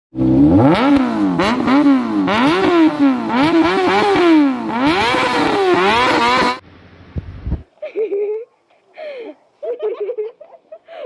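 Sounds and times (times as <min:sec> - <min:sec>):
motorcycle engine revving hard: 0:00.2 - 0:06.6.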